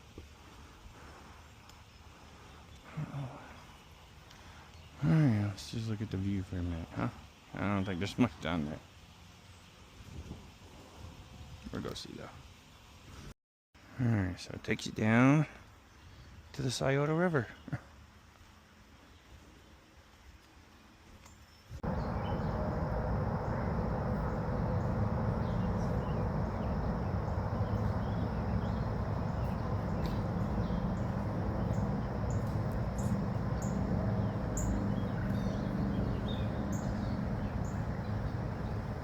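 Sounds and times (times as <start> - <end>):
low rumbling noise: 21.8 - 39.0
small birds chirping: 21.8 - 39.0.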